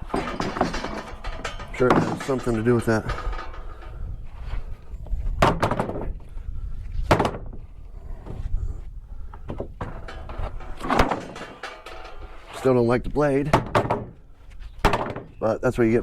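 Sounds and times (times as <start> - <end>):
wooden boards knocking: 14.8 - 15.4.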